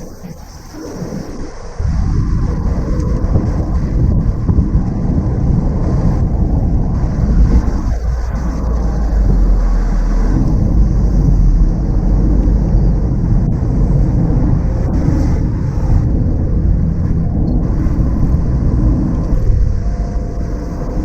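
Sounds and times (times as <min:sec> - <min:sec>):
low road rumble: 0:00.0 - 0:21.0
car engine running: 0:06.9 - 0:21.0.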